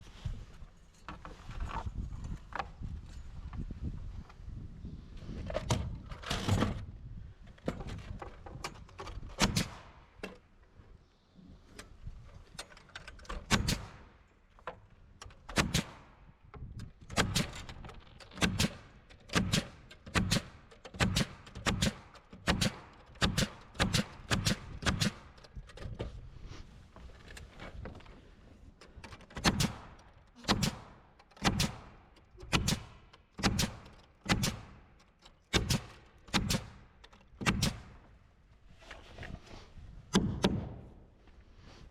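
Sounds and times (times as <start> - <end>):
pneumatic nailer firing: 9.3 - 9.9, 13.4 - 14.1, 15.4 - 16.1, 17.0 - 25.4, 29.3 - 38.0.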